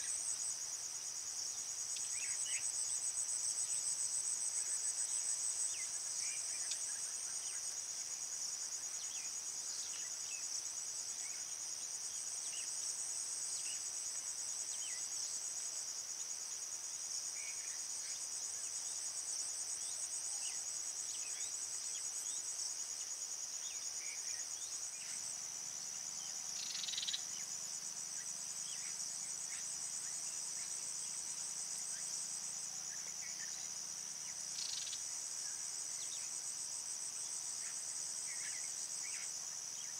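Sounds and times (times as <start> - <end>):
insects trilling: 16.9 - 39.9.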